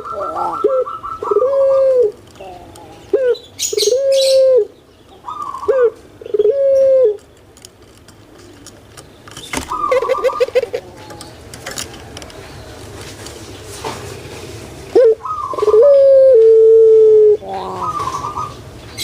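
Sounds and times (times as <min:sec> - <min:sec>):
dove cooing: 0:00.0 - 0:07.2, 0:09.6 - 0:11.4, 0:14.9 - 0:18.6.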